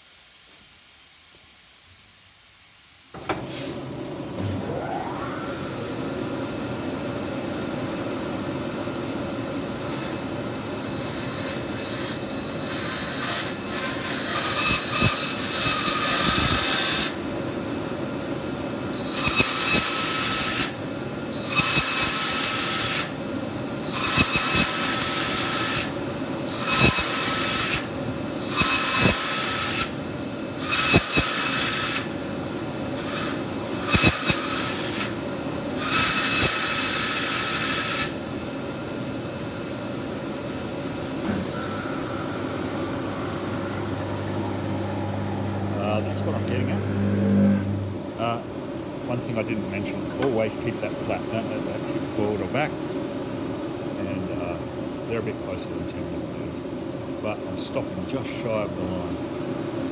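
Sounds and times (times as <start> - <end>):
bandsaw running: 9.8 - 17.2, 18.8 - 23.2, 23.8 - 38.3, 39.9 - 48.4
bandsaw blade cutting wood: 9.9 - 17.2, 19.0 - 20.8, 21.4 - 23.2, 23.9 - 30.0, 30.6 - 32.2, 32.9 - 35.2, 35.8 - 38.2, 41.1 - 48.1.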